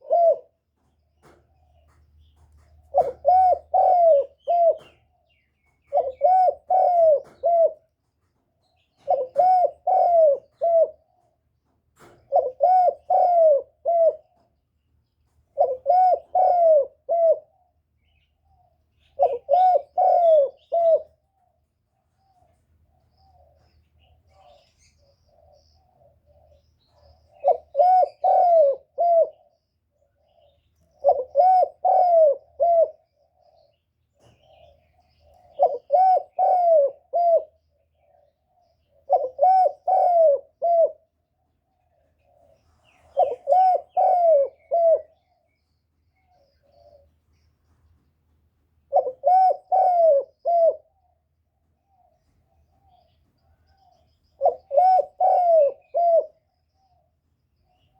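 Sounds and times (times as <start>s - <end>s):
dove cooing: 0.0s - 14.6s, 15.4s - 17.9s, 18.5s - 47.2s, 48.8s - 57.9s
faint soft bird notes: 17.1s - 31.8s, 41.1s - 57.9s.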